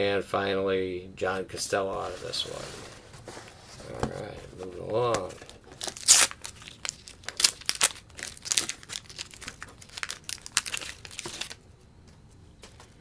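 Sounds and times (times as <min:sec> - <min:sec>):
wax paper wrapper tearing and crinkling: 0:02.0 - 0:11.6.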